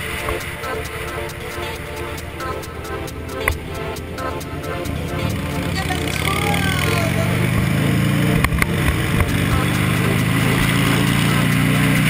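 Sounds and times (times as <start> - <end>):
motorcycle engine running: 4.5 - 12.0.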